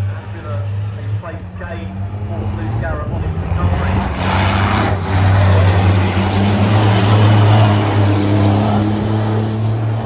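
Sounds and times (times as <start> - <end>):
racing truck engines at full throttle: 0.0 - 10.0.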